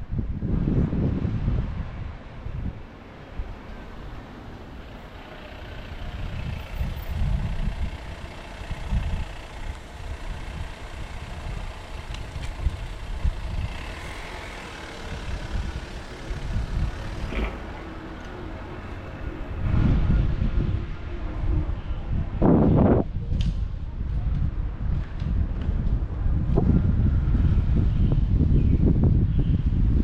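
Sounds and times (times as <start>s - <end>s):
wind buffeting microphone: 0.0s - 30.0s
road traffic hiss: 0.4s - 22.4s.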